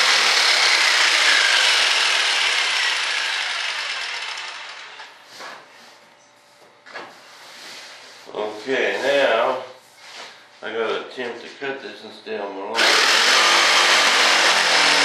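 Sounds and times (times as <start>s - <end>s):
electric saw cutting: 0.0s - 5.1s, 12.8s - 15.0s.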